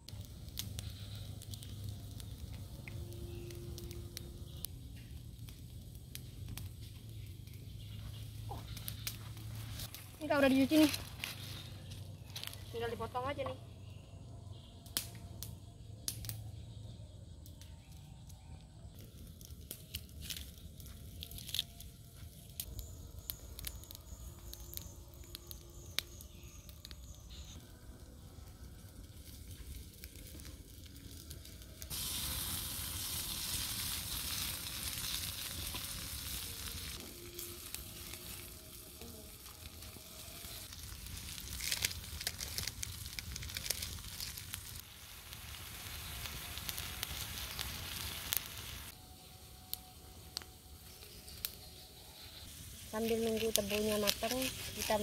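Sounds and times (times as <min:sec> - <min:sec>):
crackles: 0:00.0 - 0:55.0
food sizzling in a pan: 0:31.8 - 0:48.9, 0:50.8 - 0:55.0.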